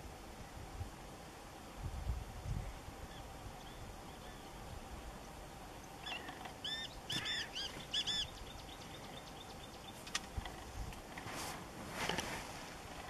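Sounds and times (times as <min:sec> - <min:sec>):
bird calling: 0:05.7 - 0:10.8.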